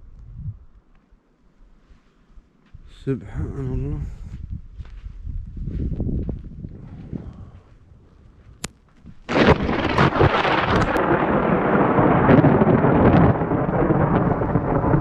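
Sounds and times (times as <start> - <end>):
rumble of thunder: 9.2 - 15.0
thunderclap: 9.2 - 15.0.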